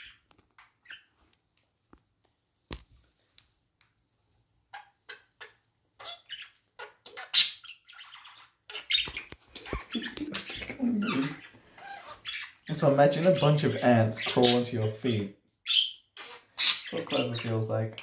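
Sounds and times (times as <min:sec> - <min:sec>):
budgie chirping: 0:04.7 - 0:15.0, 0:15.6 - 0:18.0.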